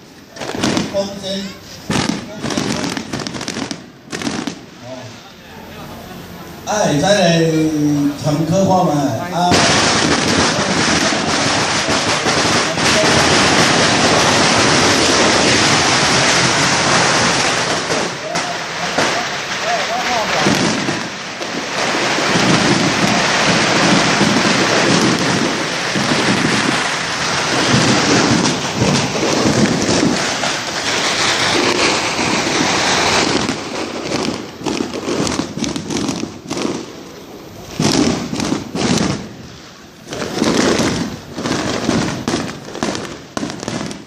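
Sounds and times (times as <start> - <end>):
firecracker bangs and pops: 0.0 - 5.0, 8.2 - 37.0, 37.7 - 44.0
fireworks crackling: 0.0 - 44.0.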